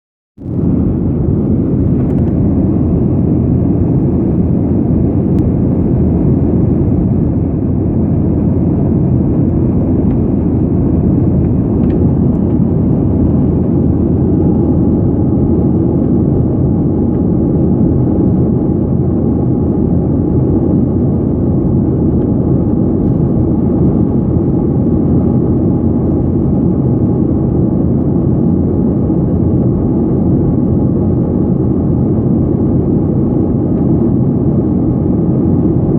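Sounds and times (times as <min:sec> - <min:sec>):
faint steady hum: 0:00.4 - 0:15.8
aircraft engine drone in cabin: 0:00.4 - 0:35.9.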